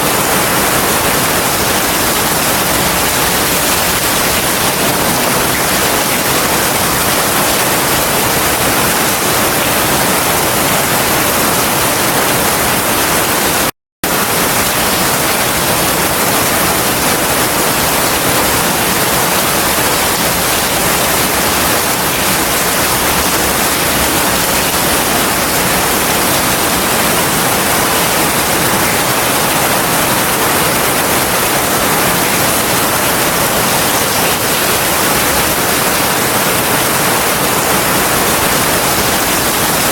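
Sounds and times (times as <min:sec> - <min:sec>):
heavy rain hissing: 0:00.1 - 0:11.4.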